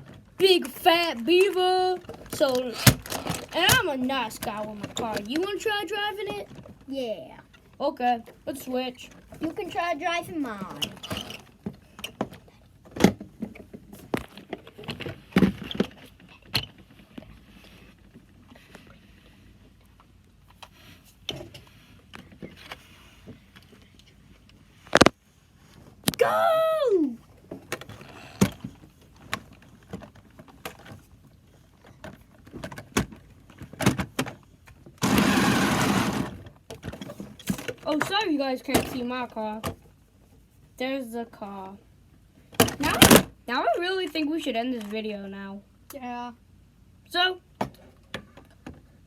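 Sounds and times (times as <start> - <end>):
toy car electric motor running: 35.0 - 36.4.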